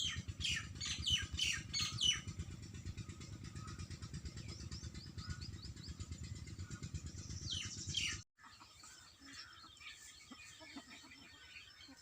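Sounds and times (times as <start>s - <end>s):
low rumble: 0.0s - 8.2s
birds chirping: 0.0s - 12.0s.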